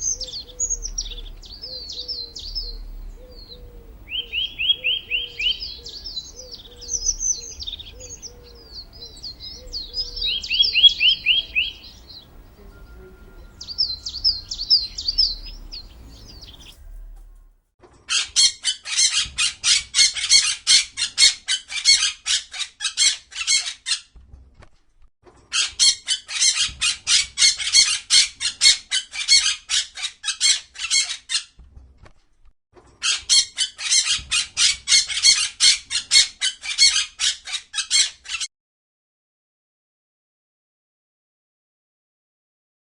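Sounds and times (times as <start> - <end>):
harsh pulsing bird call: 0.0 - 16.8
songbirds chirping and singing: 0.0 - 17.1, 32.8 - 38.5.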